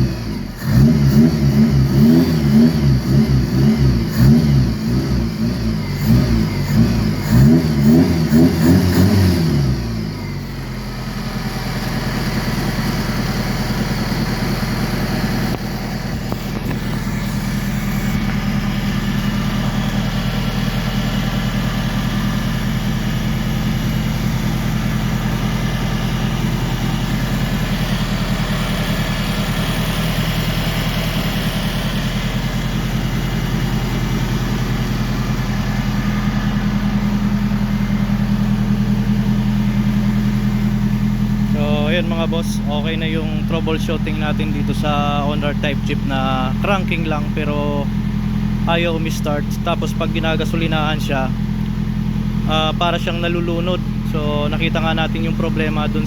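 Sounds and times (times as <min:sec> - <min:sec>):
car engine revving and idling: 0:00.0 - 0:56.0.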